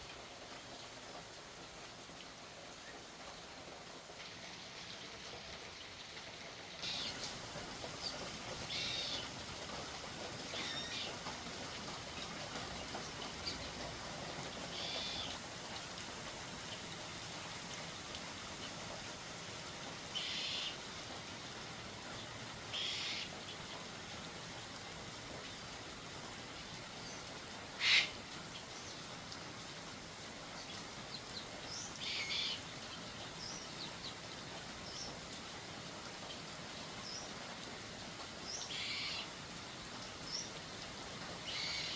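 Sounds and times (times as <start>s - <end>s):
bird squawks and chirps: 22.8s - 23.3s, 27.8s - 28.2s, 38.7s - 39.2s, 41.5s - 41.9s.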